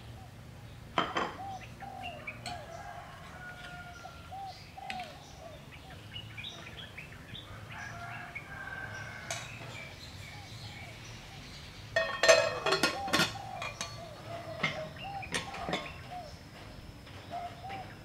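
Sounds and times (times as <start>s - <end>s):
birds calling and chirping: 0.0s - 18.0s
metal clink: 12.0s - 14.0s.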